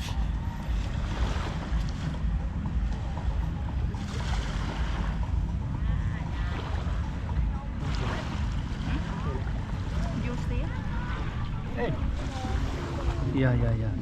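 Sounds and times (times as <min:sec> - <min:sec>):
faint voices: 0:00.0 - 0:14.0
surf on beach: 0:00.0 - 0:14.0
wind buffeting microphone: 0:00.0 - 0:14.0.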